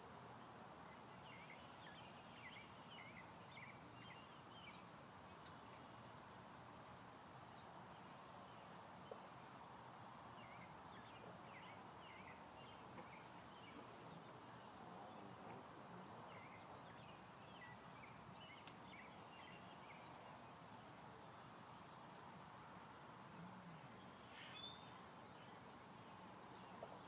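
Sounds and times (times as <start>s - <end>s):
low outdoor hiss: 0.0s - 27.0s
faint bird chirps: 23.4s - 27.0s.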